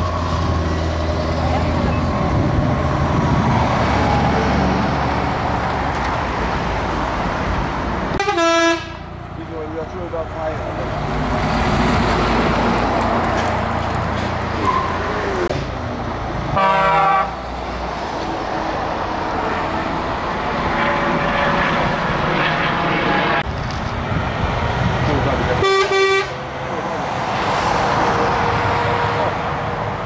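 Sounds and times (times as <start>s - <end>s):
heavy trucks driving past: 0.0s - 30.0s
truck horn blast: 8.2s - 9.0s, 16.5s - 17.4s, 25.6s - 26.4s.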